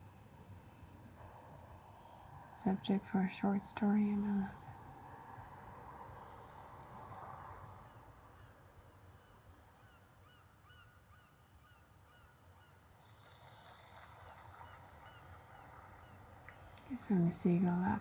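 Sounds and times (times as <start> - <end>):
high insect buzz: 12.7 - 18.0.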